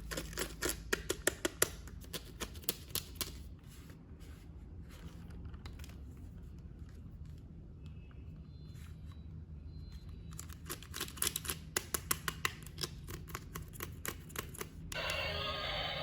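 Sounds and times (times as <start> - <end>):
music: 15.0 - 16.0.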